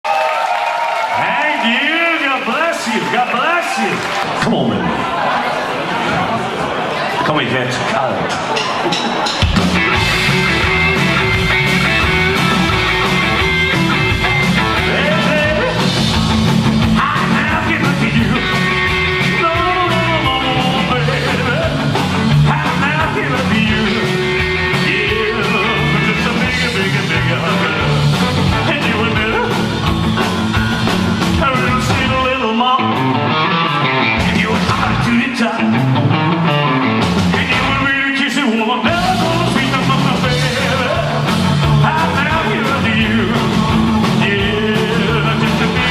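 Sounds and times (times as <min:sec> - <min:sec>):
rock band playing live: 0:07.8 - 0:45.9
person singing: 0:10.2 - 0:16.0, 0:16.9 - 0:29.8, 0:31.3 - 0:35.9, 0:37.3 - 0:45.9.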